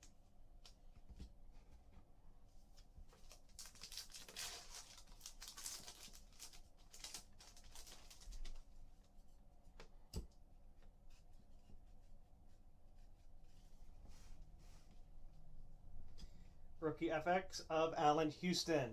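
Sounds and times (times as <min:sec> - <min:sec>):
trading cards rustling: 0:03.2 - 0:08.7.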